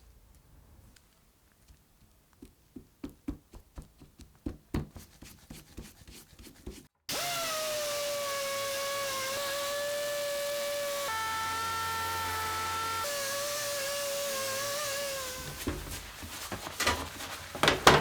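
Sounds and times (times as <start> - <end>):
clicks and knocks of hand work: 15.5 - 18.0.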